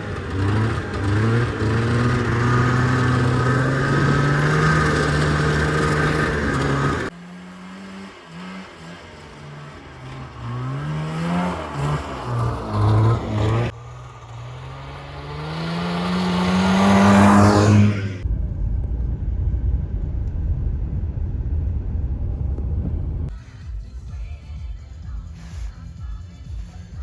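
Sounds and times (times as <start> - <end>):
snowmobile engine revving: 0.0 - 18.3.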